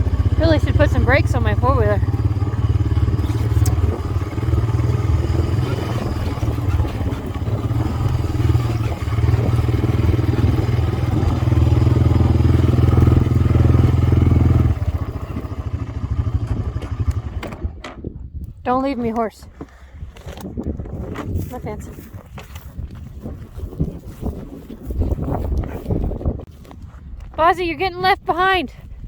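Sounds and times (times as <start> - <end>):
atv engine running: 0.0 - 28.6.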